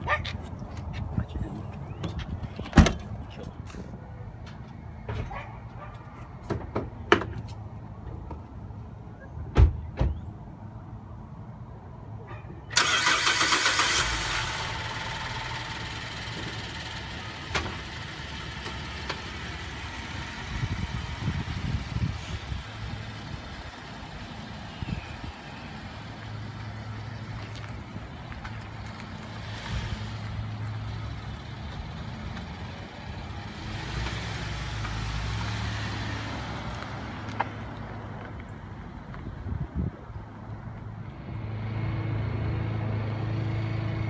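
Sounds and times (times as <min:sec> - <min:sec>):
car driving off: 0:12.7 - 0:38.4
car engine idling: 0:12.8 - 0:29.4.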